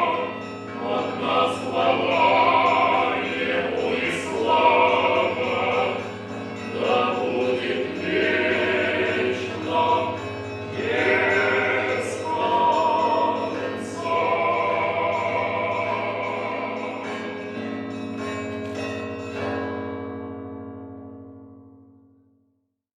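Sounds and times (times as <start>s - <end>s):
choir singing: 0.0s - 17.8s.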